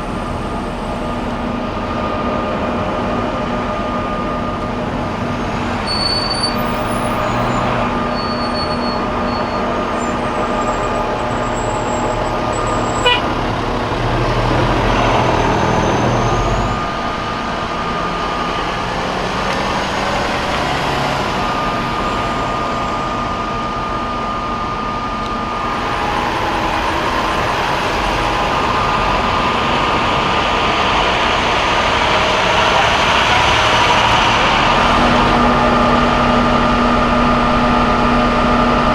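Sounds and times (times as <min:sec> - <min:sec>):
heavy vehicles passing: 0:00.0 - 0:38.9
long horn tones: 0:03.5 - 0:23.2.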